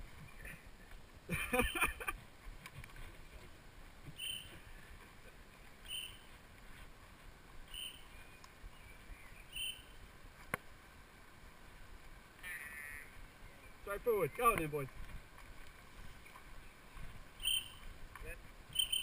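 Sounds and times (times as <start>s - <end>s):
bird high call: 4.2s - 4.7s, 5.8s - 6.3s, 7.7s - 8.1s, 9.4s - 9.9s, 12.4s - 13.6s, 17.4s - 17.8s, 18.7s - 19.0s.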